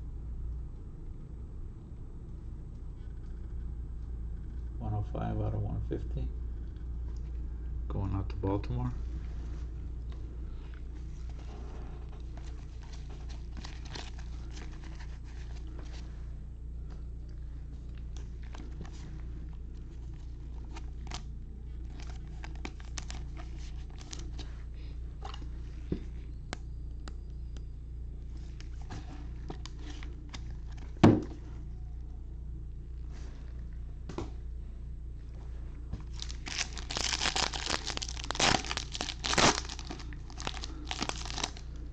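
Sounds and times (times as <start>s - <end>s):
steady low hum: 0.0s - 41.9s
wrappers crinkling and tearing: 12.2s - 16.0s, 19.9s - 24.5s, 36.0s - 41.8s.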